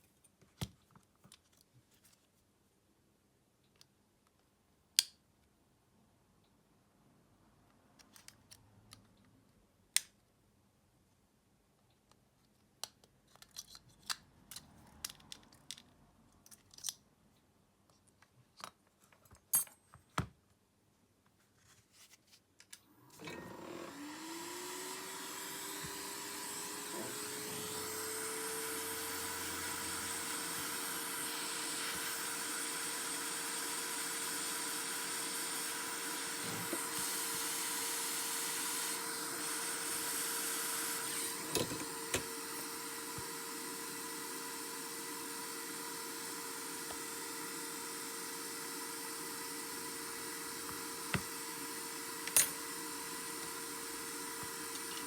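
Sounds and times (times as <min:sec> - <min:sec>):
hot-air blower whine and hiss: 0:23.0 - 0:55.0.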